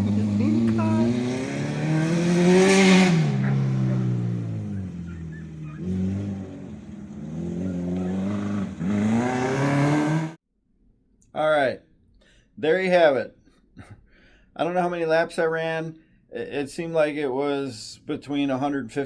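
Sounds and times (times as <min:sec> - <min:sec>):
race car engine revving: 0:00.0 - 0:10.4.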